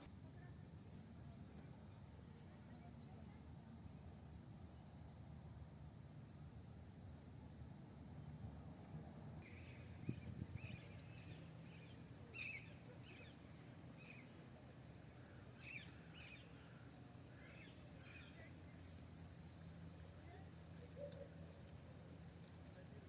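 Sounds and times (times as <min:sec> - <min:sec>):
low steady rumble: 0:00.0 - 0:23.0
faint birds chirping: 0:09.4 - 0:23.0.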